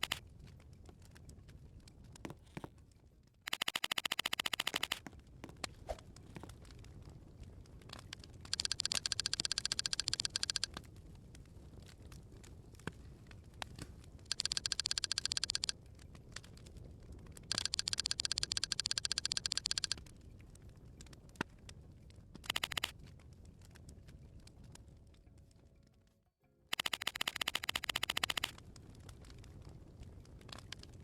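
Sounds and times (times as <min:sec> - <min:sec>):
rapid rasping clicks: 0:00.0 - 0:02.7, 0:03.5 - 0:10.9, 0:13.5 - 0:20.2, 0:22.4 - 0:23.0, 0:26.7 - 0:31.0.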